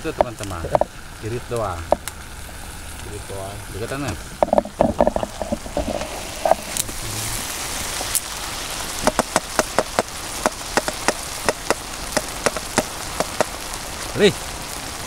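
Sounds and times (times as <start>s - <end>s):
oil popping and spattering: 0.0s - 15.0s
shrimp frying in a pan: 0.0s - 15.0s.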